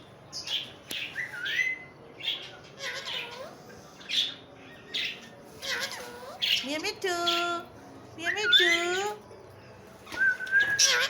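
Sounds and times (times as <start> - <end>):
parrot squawking and chirping: 0.4 - 7.6, 8.2 - 9.2, 10.6 - 11.0.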